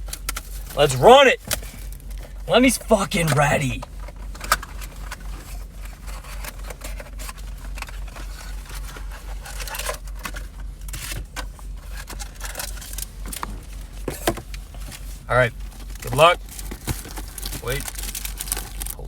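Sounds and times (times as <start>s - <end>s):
plastic wrapping tearing and crinkling: 16.6s - 19.0s.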